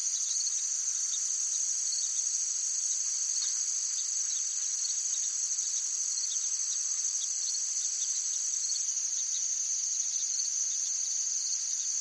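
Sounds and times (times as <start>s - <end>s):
insect chorus trilling: 0.1s - 12.0s.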